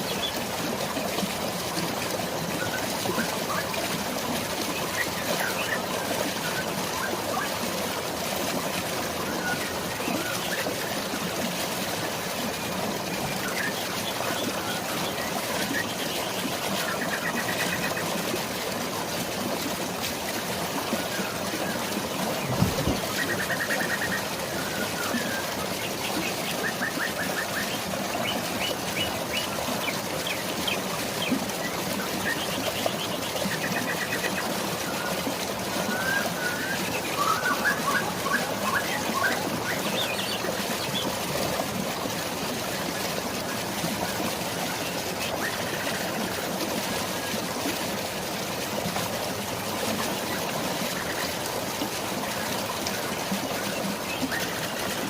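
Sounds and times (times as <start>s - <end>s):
drizzling rain: 0.0s - 54.8s
waterfall water flowing: 0.0s - 55.0s
brief low thump: 22.4s - 23.0s.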